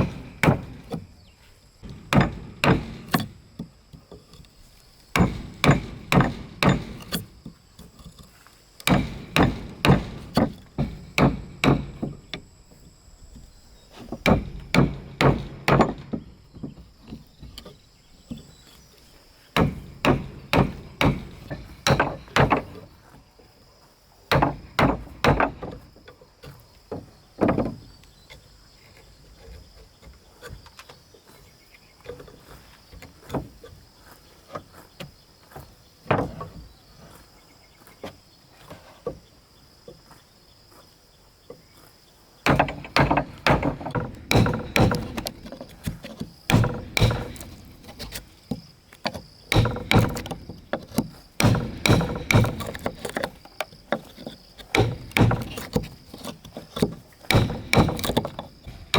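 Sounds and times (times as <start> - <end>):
hammer striking wood: 0.0 - 1.1, 1.8 - 3.7, 5.1 - 7.3, 8.8 - 12.5, 14.0 - 16.8, 19.6 - 22.8, 24.3 - 25.8, 42.4 - 58.9
insects buzzing: 0.0 - 58.9.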